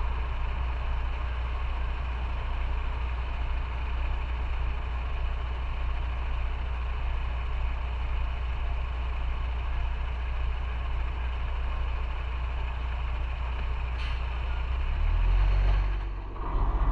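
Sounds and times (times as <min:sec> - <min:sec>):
loud low rumble: 0:15.6 - 0:16.9.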